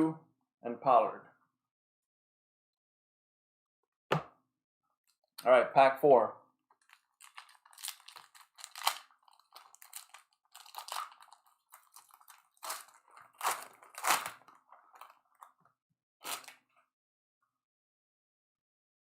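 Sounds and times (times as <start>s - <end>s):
card wrapper crinkling and tearing: 6.7s - 15.5s, 16.2s - 16.6s
cards being handled: 6.8s - 15.5s.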